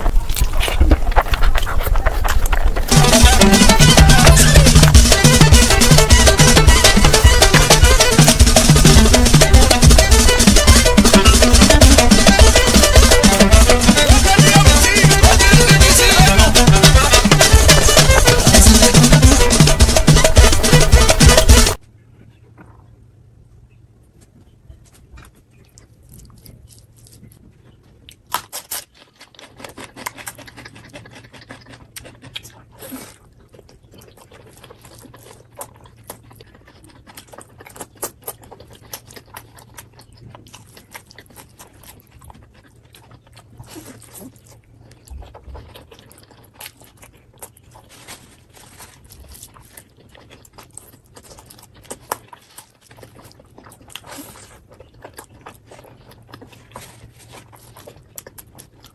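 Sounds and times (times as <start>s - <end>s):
mouth clicks and smacks: 0.0s - 21.8s
chewing and crunching food: 0.0s - 58.9s.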